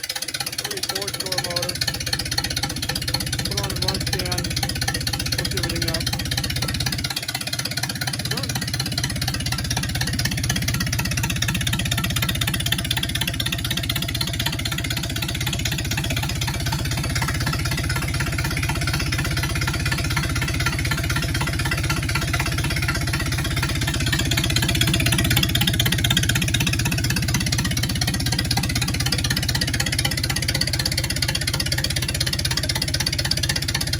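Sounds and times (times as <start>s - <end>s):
four-cylinder engine running: 0.0s - 33.9s.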